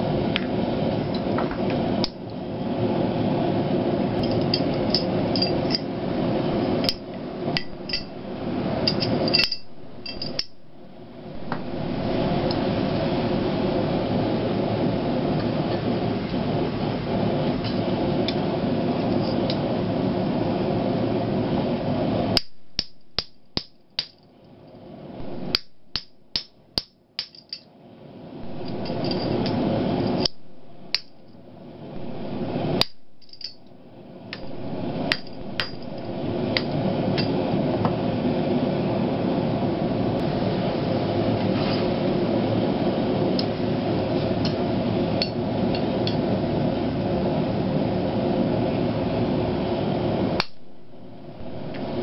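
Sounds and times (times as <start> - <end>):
steady rushing noise: 0.0 - 24.0, 24.8 - 26.7, 28.0 - 52.0
hammer striking steel on anvil: 8.8 - 10.6, 22.4 - 24.2, 25.4 - 27.6, 28.6 - 31.3, 32.7 - 33.7, 34.4 - 37.4.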